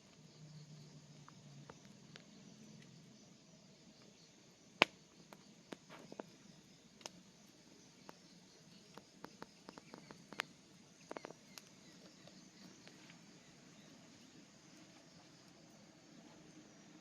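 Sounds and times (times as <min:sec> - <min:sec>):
low steady hiss: 0:00.0 - 0:17.0
wood fire crackling: 0:04.8 - 0:13.3.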